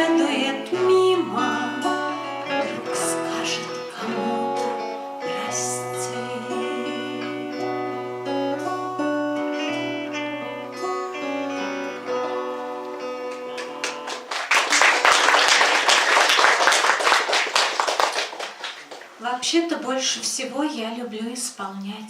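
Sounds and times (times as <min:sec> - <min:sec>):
acoustic guitar playing: 0:00.0 - 0:16.0
audience applauding: 0:13.2 - 0:19.2.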